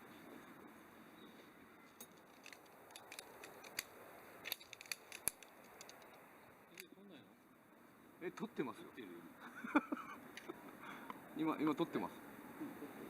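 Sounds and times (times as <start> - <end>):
sharp clicks and snips: 2.0 - 6.9.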